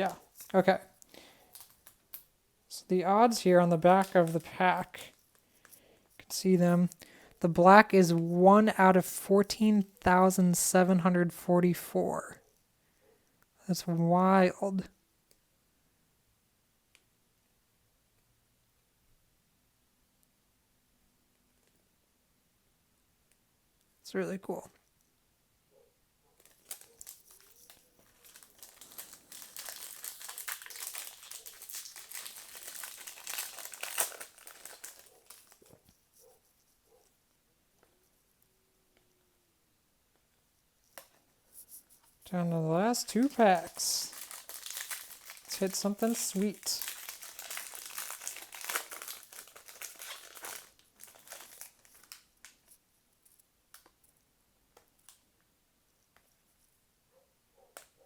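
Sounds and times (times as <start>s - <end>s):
foil wrapper crinkling: 0.0s - 7.0s, 26.4s - 36.4s, 41.7s - 53.4s.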